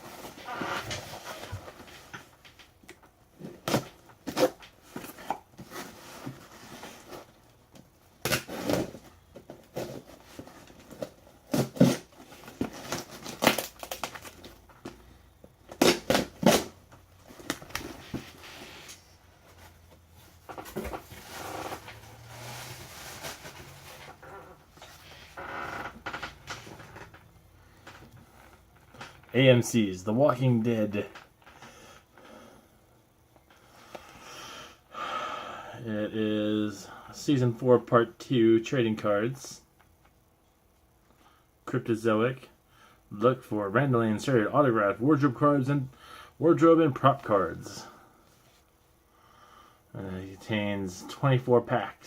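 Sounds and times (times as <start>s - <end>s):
packing material crinkling: 9.8s - 15.0s, 15.7s - 27.1s
package tearing: 11.0s - 14.6s.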